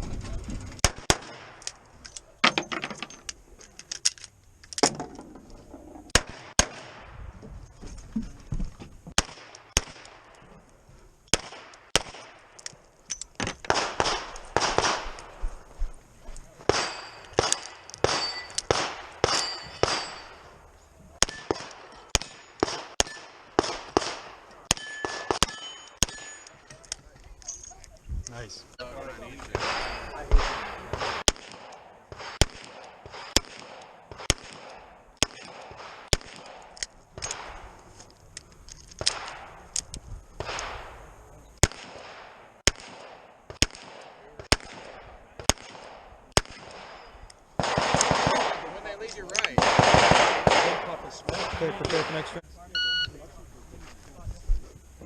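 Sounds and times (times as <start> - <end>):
revolver gunshots: 0.8 - 1.6, 6.1 - 7.2, 9.2 - 10.3, 11.3 - 12.5, 13.7 - 15.4, 16.7 - 20.5, 21.2 - 26.4, 29.5 - 37.7, 41.6 - 52.4
steel targets clanging: 2.4 - 3.3, 16.7 - 20.6, 24.7 - 26.8, 29.5 - 31.2.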